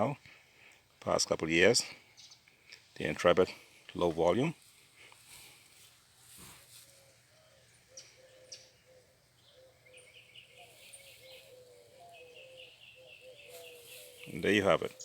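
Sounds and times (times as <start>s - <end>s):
low repeated bird notes: 6.7s - 15.0s.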